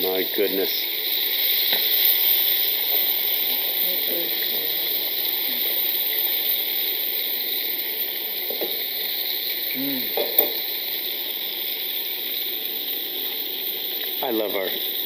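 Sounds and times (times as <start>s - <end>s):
chicken sizzling in a skillet: 0.0s - 15.0s.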